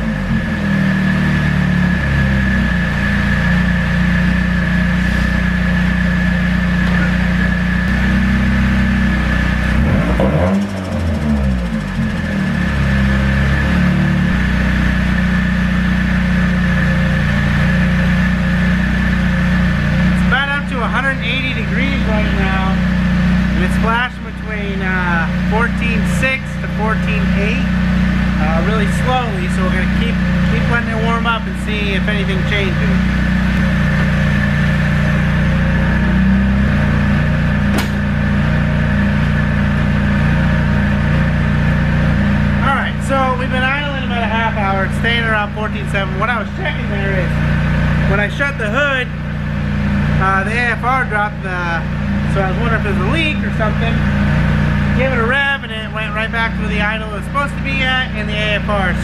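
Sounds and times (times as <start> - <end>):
car engine idling: 0.0 - 59.0
sharp knock: 37.7 - 38.1.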